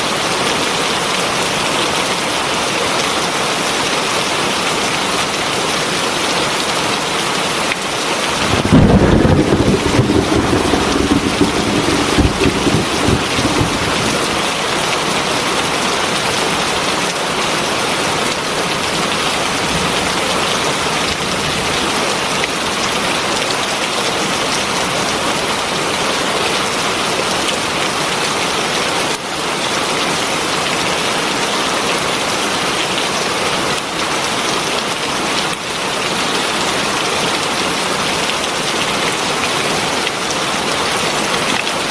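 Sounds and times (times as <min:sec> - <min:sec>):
heavy rain falling: 0:00.1 - 0:41.9
thunder rumbling: 0:08.3 - 0:15.2.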